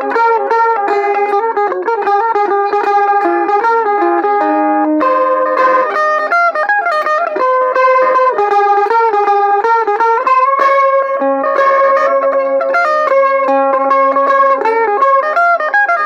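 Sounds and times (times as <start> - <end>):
mandolin tremolo melody: 0.0 - 16.0.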